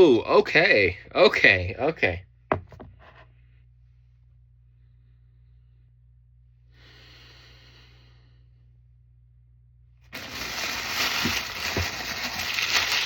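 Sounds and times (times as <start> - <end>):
paper rustling and crinkling: 10.1 - 13.0.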